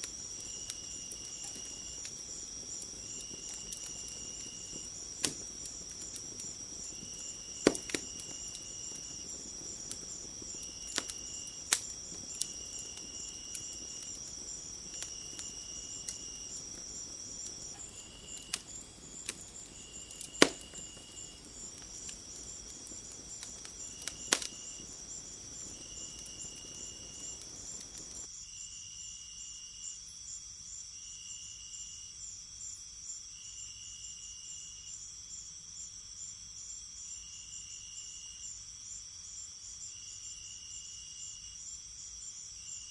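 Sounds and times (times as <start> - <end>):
wood fire crackling and popping: 0.0 - 28.3
insects chirring: 0.0 - 42.9.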